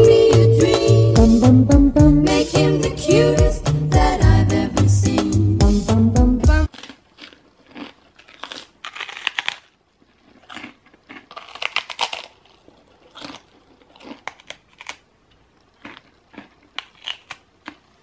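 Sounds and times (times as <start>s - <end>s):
person crunchy chewing: 6.7s - 18.0s.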